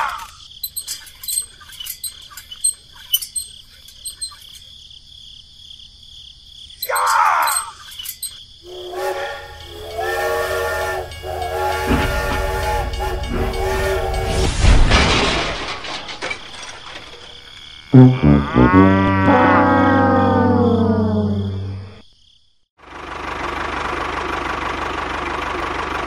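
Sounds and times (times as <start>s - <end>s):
toy train electronic whistle: 8.7s - 14.5s.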